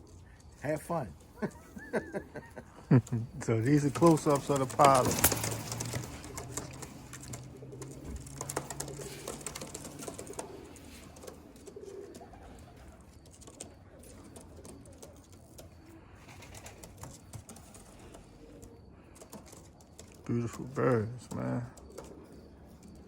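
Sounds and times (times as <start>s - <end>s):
pigeons cooing softly: 0.0s - 23.0s.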